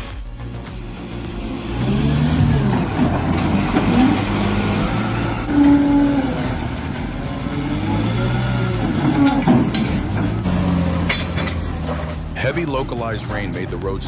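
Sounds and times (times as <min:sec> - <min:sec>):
heavy diesel engines revving: 0:01.1 - 0:12.2.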